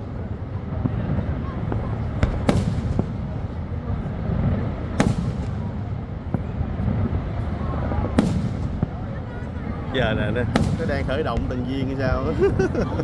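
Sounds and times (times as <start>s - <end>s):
firework shells bursting: 4.9s - 5.8s, 8.1s - 9.1s, 10.4s - 11.7s.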